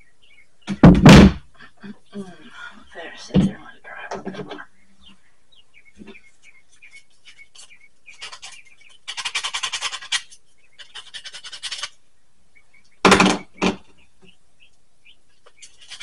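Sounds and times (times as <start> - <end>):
falling bird chirps: 0.0 - 16.0
fast rattling bursts: 8.2 - 12.0.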